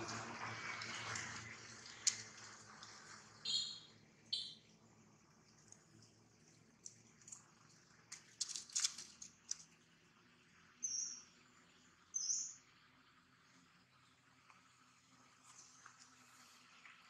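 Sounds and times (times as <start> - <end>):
crackling clicks: 1.9 - 3.0, 8.1 - 9.7
short high bird chirps: 3.4 - 4.6, 10.8 - 11.3, 12.2 - 12.6.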